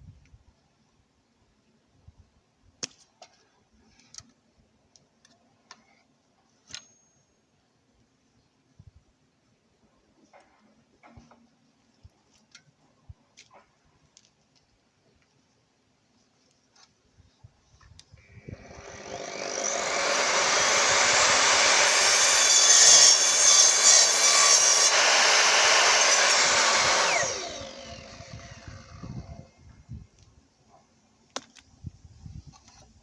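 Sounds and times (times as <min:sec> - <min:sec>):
mitre saw cutting: 0:18.4 - 0:29.4.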